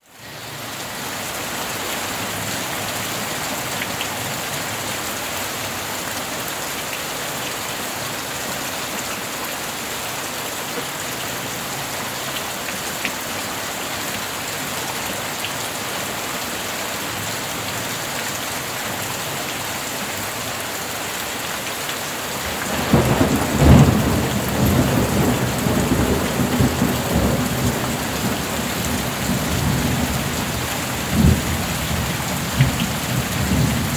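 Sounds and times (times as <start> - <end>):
steady rain hissing: 0.0 - 33.9
thunder clap rumbling: 22.4 - 33.9.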